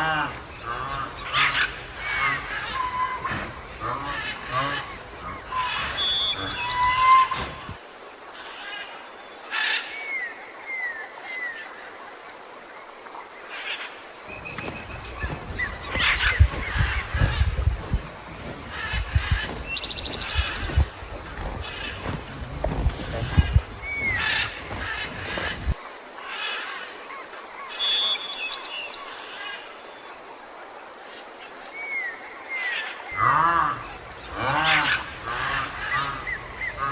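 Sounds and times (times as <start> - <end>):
birds chirping and whistling: 14.3 - 25.8.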